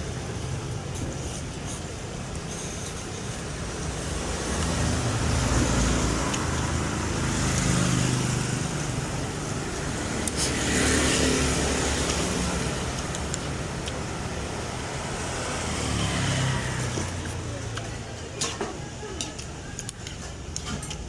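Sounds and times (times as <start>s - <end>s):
vehicles passing: 0.0s - 21.0s.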